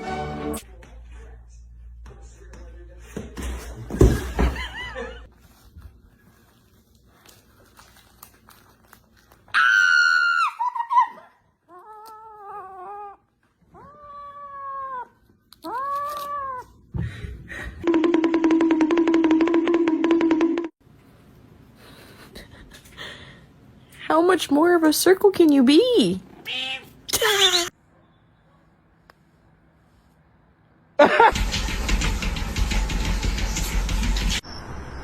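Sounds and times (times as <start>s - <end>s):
cat meowing: 26.4s - 27.7s.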